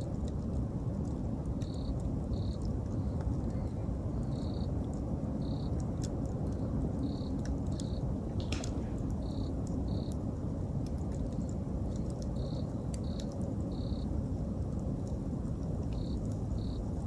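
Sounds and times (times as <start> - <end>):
campfire burning: 0.0 - 17.0
fire crackles and pops: 0.0 - 17.0
insect chirping: 1.6 - 3.2, 4.2 - 4.7, 5.4 - 5.8, 7.0 - 10.2, 12.4 - 14.1, 16.0 - 17.0.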